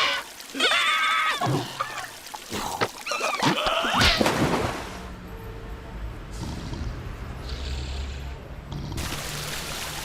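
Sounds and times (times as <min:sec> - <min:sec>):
rain falling: 0:00.0 - 0:04.0, 0:09.0 - 0:10.0.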